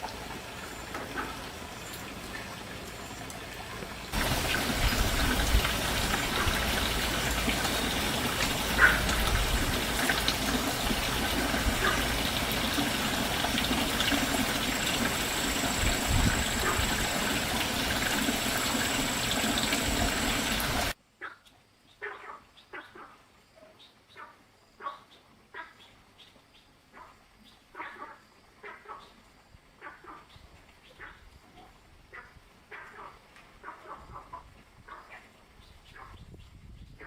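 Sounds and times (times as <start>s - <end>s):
running water gushing: 0.0s - 21.0s.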